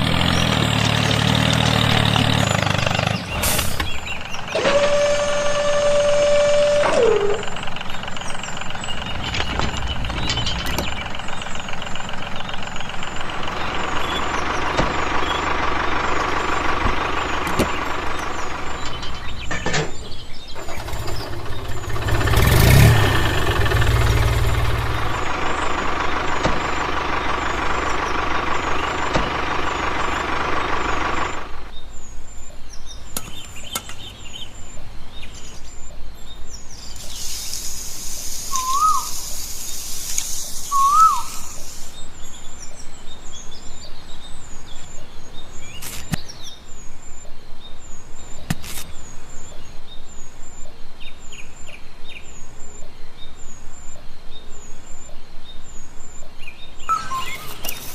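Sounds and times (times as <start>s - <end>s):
engine pulsing: 0.0s - 32.5s.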